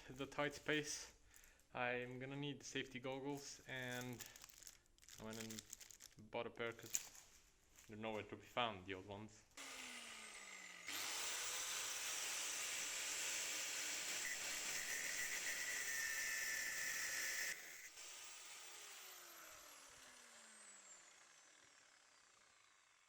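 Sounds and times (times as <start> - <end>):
power tool cutting metal: 9.6 - 22.9.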